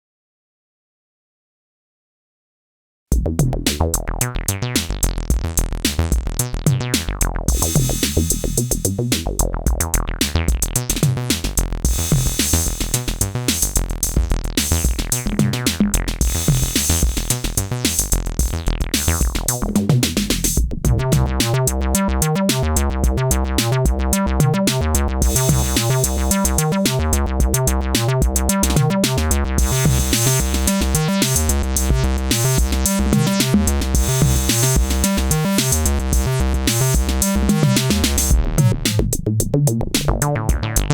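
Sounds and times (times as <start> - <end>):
acid bass line: 3.1 - 40.9
drum machine beat: 3.1 - 40.9
synth sweep: 7.0 - 9.2, 11.9 - 19.8, 20.9 - 39.0.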